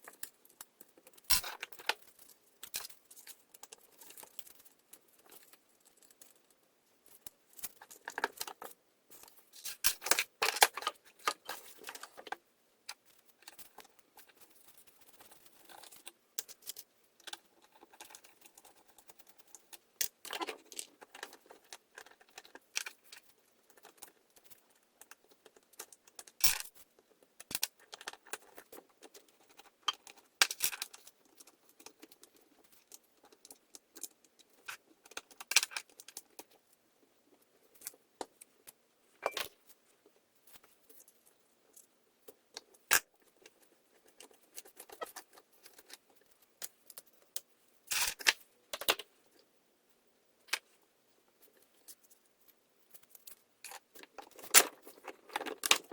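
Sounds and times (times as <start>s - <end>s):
metallic clicks and rattles of parts: 15.0s - 26.8s, 27.4s - 36.6s.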